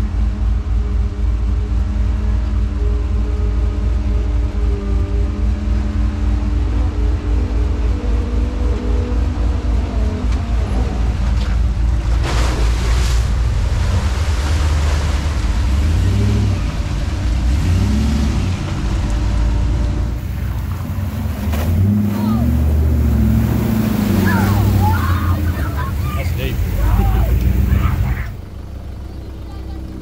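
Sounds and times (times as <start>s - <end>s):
vehicle engine at low revs: 0.0s - 30.0s.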